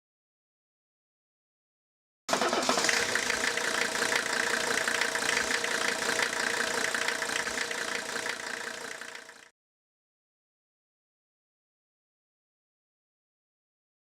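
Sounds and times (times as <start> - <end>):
vehicle engine idling: 2.3 - 9.5.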